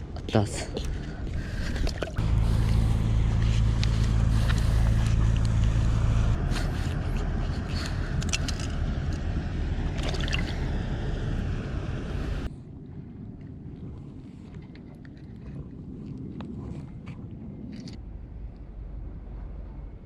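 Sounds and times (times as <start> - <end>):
wind noise on microphone: 0.0 - 20.0
boat engine droning: 1.2 - 12.5, 18.0 - 20.0
clicks and rattles: 7.5 - 9.2.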